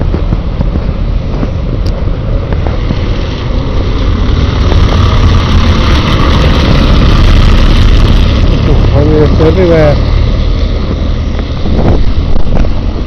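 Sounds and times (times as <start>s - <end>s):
heavy rain hiss: 0.0s - 13.0s
wind buffeting microphone: 0.0s - 13.0s.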